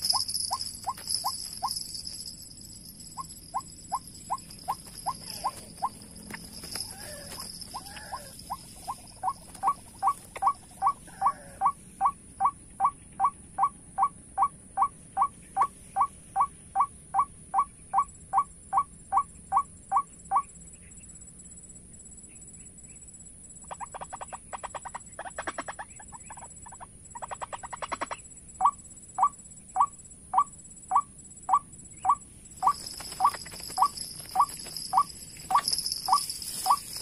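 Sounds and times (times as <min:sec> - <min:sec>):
rattling burst of bird calls: 0:00.0 - 0:11.7, 0:32.6 - 0:37.0
high insect whine: 0:00.0 - 0:12.6, 0:28.0 - 0:37.0
waterhen call notes: 0:03.1 - 0:13.8.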